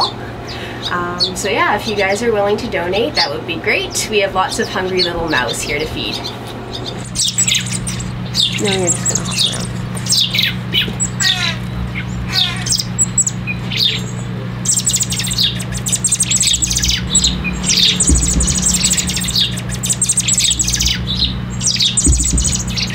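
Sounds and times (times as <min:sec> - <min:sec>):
young birds squawking: 0:00.0 - 0:22.9
low hum: 0:04.8 - 0:22.9.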